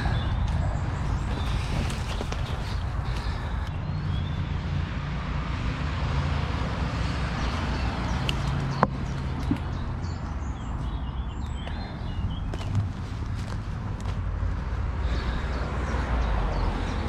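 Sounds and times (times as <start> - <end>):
traffic rumble: 0.0 - 17.0
footsteps through undergrowth: 1.1 - 3.6, 12.5 - 15.3.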